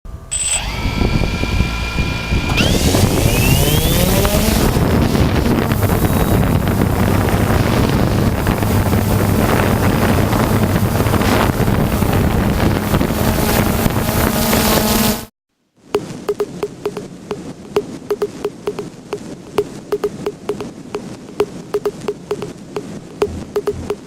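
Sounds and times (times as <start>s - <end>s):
drone propellers humming: 0.1s - 15.3s, 23.2s - 24.0s
wind noise on microphone: 0.1s - 15.3s, 16.0s - 24.0s.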